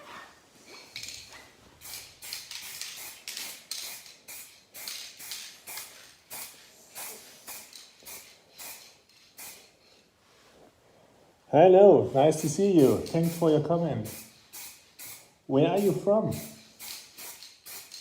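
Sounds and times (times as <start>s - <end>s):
aerosol can spraying: 1.8s - 9.8s, 12.3s - 18.0s.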